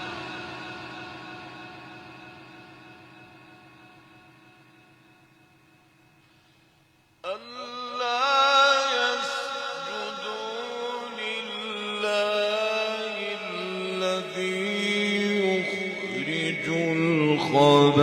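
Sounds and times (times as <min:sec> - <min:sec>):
man reciting melodically: 0:07.2 - 0:18.0.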